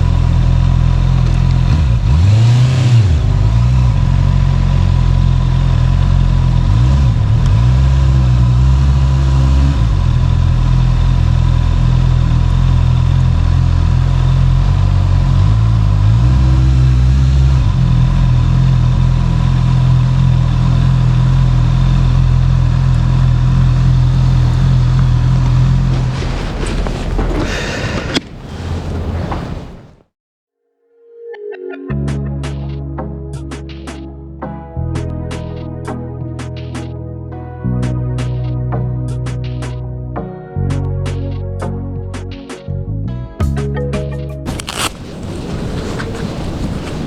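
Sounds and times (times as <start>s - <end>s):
motorcycle engine running: 0.0s - 27.6s.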